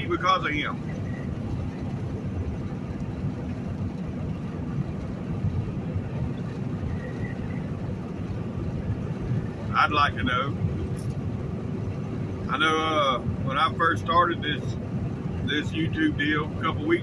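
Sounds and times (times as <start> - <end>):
road noise: 0.0 - 17.0
truck engine rumble: 0.0 - 17.0.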